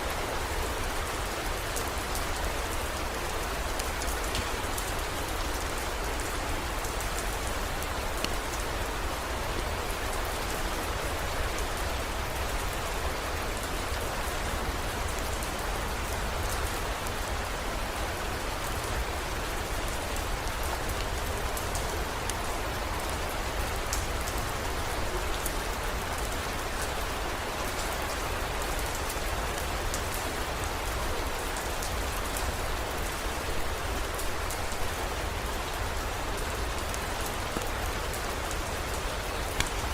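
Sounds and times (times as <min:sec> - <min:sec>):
rain drops ticking: 0:00.1 - 0:39.9.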